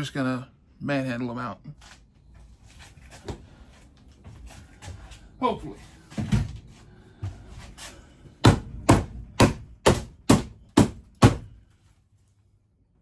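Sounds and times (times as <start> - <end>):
hard knocks on fittings: 8.4 - 11.6.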